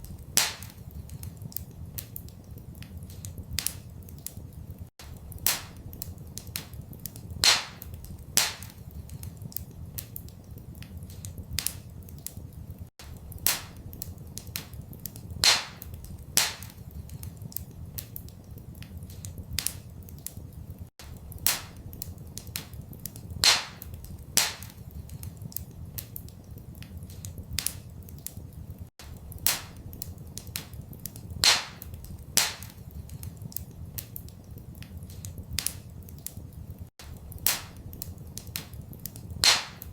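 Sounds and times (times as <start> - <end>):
fire popping and snapping: 0.0 - 39.9
fire rumbling: 0.0 - 39.9.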